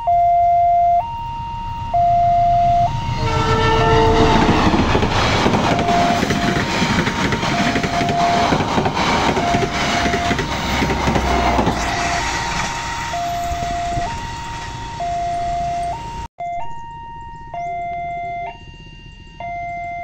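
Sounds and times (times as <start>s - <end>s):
two-tone crossing alarm: 0.0s - 20.0s
passing train rumble: 1.2s - 16.3s.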